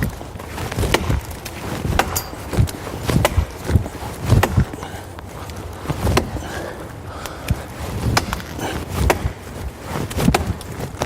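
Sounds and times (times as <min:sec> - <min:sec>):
axe chopping wood: 0:00.0 - 0:05.0, 0:06.1 - 0:06.6, 0:07.2 - 0:09.4, 0:10.0 - 0:11.0.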